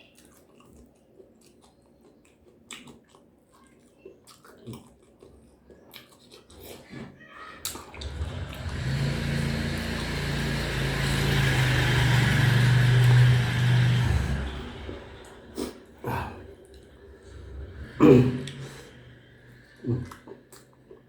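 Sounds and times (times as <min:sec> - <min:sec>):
motor vehicle passing by: 0:08.0 - 0:20.8.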